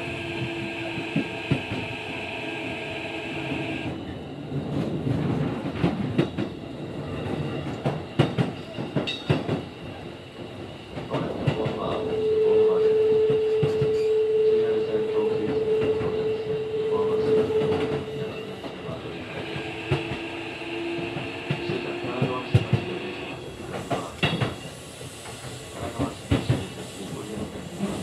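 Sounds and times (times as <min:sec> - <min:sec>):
train rumble: 0:00.0 - 0:28.0
train wheels clacking over rail joints: 0:23.7 - 0:24.7.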